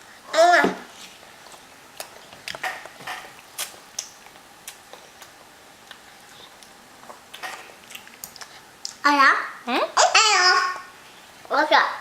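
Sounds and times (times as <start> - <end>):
chewing clicks and lip smacks: 1.5 - 9.0.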